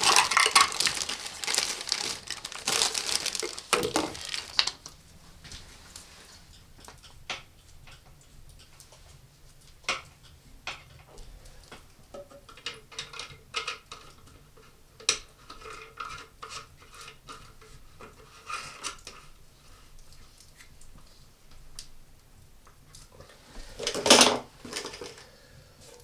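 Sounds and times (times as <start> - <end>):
small hard objects clicking: 0.0 - 4.9.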